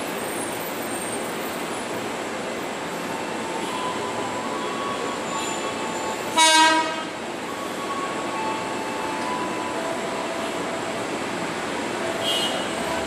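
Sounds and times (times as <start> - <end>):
train rolling rumble: 0.0 - 13.0
short train horn toot: 6.3 - 7.2, 12.2 - 12.8.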